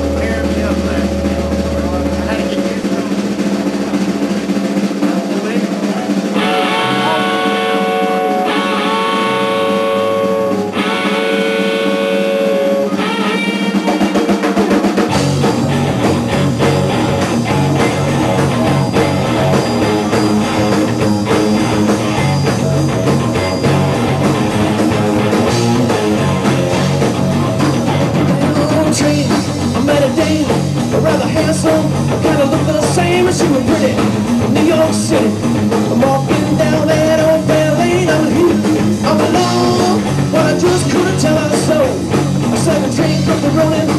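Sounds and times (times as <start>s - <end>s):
long held notes: 0.0s - 4.8s, 6.3s - 14.1s
drums: 0.0s - 43.9s
rock band playing: 0.0s - 43.9s.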